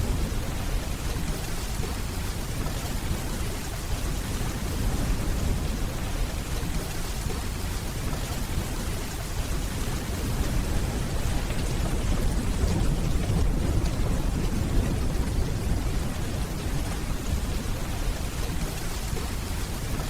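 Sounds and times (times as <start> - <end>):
distant thunder rumble: 0.0 - 20.0
steady rainfall: 0.0 - 20.0.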